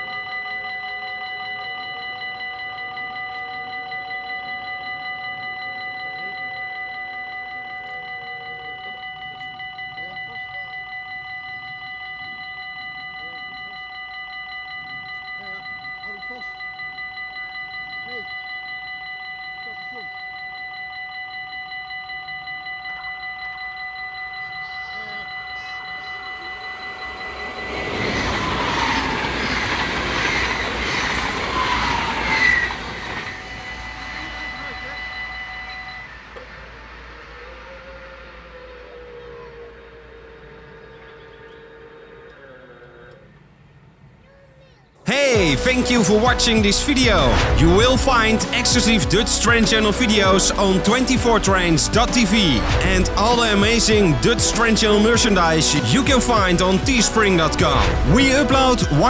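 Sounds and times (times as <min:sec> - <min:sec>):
level crossing electronic bell ringing: 0:00.0 - 0:41.4, 0:45.1 - 0:59.0
train passing: 0:00.0 - 0:42.4, 0:45.0 - 0:59.0
train wheel squeals: 0:00.0 - 0:43.9.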